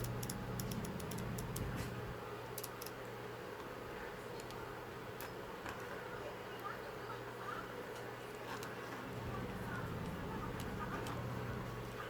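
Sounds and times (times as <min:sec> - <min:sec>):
small parts and tools clicking: 0:00.0 - 0:01.7, 0:02.6 - 0:03.0
low electrical hum: 0:00.0 - 0:12.0.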